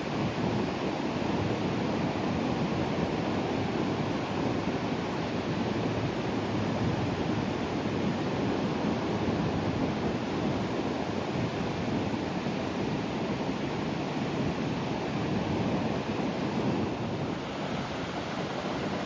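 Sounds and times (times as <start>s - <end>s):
sea waves breaking on shore: 15.3s - 19.0s.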